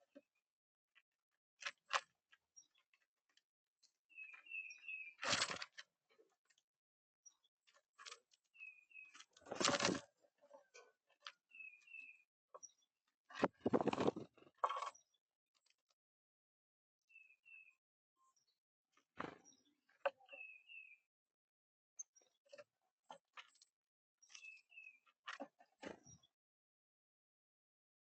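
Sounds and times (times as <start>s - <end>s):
songbird chirping: 3.8s - 5.9s, 7.2s - 15.2s, 17.1s - 18.6s, 19.2s - 21.1s, 23.3s - 26.4s.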